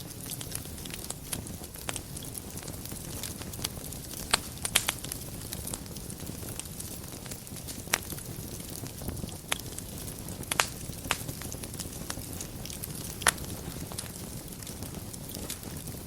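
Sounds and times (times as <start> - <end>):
fire crackles and pops: 0.0 - 16.0
fire rumbling and hissing: 0.0 - 16.0.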